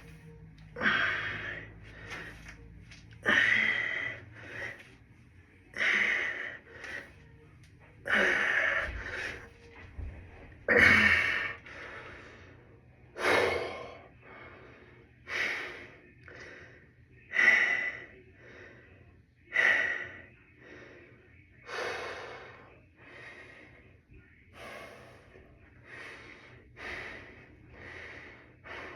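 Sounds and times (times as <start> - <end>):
person breathing hard: 0.7 - 2.6, 3.2 - 5.0, 10.8 - 28.9.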